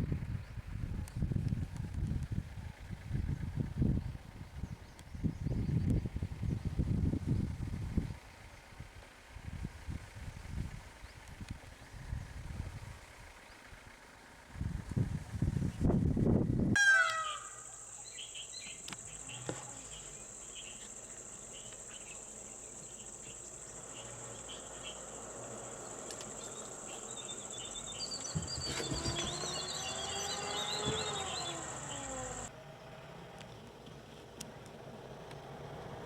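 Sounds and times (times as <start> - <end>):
bird chirps: 16.8 - 25.1, 25.8 - 32.5
insects droning: 17.0 - 32.5.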